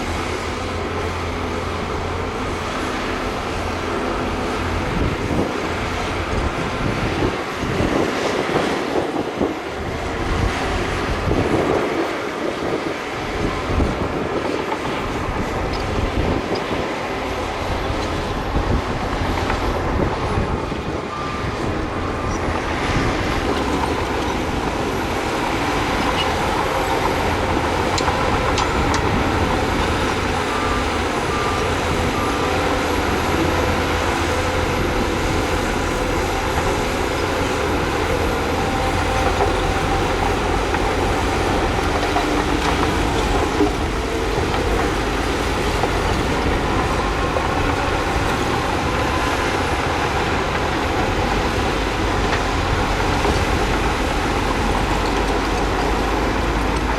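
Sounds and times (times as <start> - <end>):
diesel machinery engine drone: 0.0 - 56.9
working equipment noise: 13.4 - 56.9.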